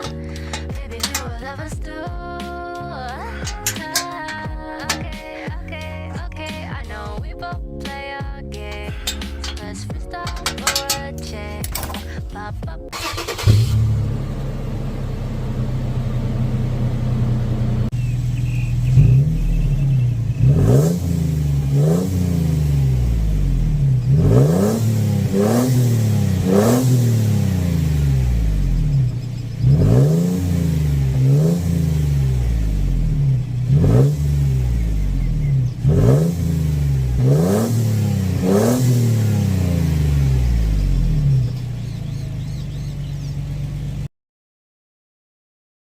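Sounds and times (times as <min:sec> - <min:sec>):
engine revving: 0:00.0 - 0:01.7, 0:08.7 - 0:12.1, 0:13.0 - 0:44.1
car engine idling: 0:00.0 - 0:07.2, 0:07.9 - 0:44.1.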